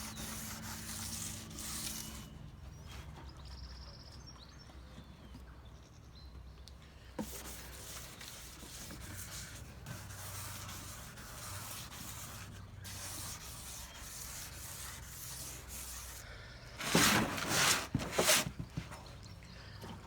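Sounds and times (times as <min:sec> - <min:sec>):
sandpaper rubbing by hand: 0:00.0 - 0:02.2, 0:07.2 - 0:16.2, 0:16.8 - 0:18.6.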